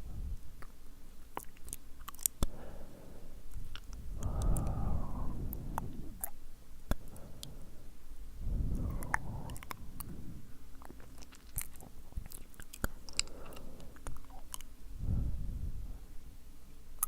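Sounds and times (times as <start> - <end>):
wet lip and tongue clicks: 0.6 - 2.6, 3.5 - 4.8, 5.5 - 7.6, 8.7 - 14.7
blowing into microphone: 3.6 - 10.8, 15.0 - 16.1.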